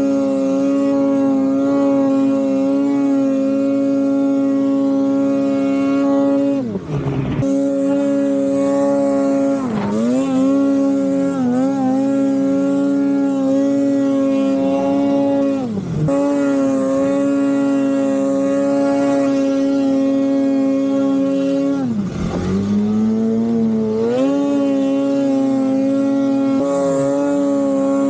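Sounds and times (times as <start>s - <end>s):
snowmobile engine revving: 0.0s - 28.0s.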